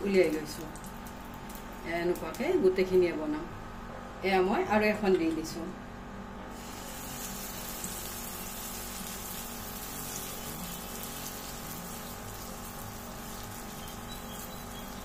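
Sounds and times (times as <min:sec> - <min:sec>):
batter sizzling in hot fat: 0:06.5 - 0:15.0.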